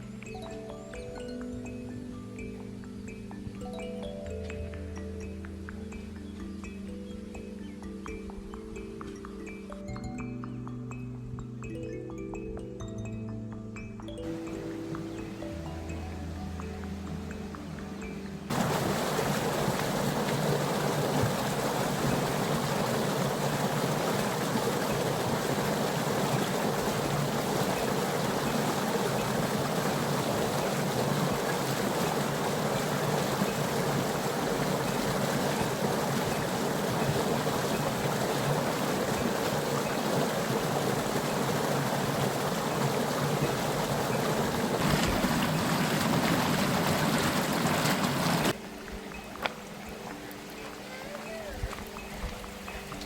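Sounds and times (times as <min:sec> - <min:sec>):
spring water running: 0:14.2 - 0:15.8, 0:18.5 - 0:53.0.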